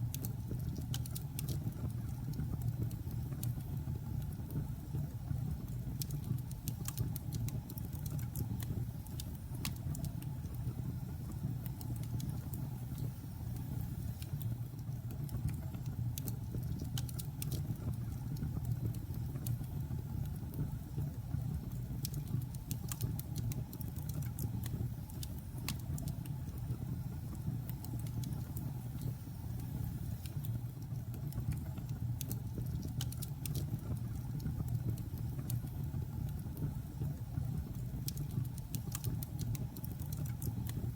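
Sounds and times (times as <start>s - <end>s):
wood crackling and popping: 0.0s - 3.7s, 14.2s - 20.7s, 21.4s - 26.7s, 27.4s - 40.9s.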